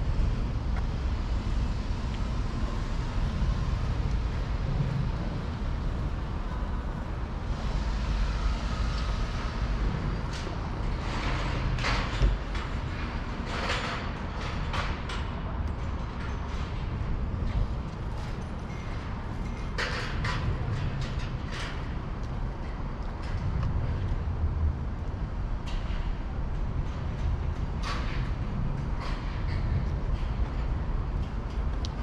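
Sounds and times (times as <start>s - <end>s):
road traffic rumble: 0.0s - 15.7s.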